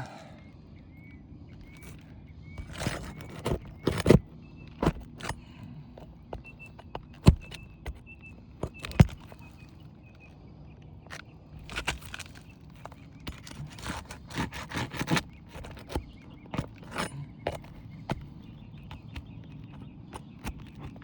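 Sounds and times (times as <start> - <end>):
metal bar prying roofing nails: 2.6 - 9.5, 11.6 - 21.0.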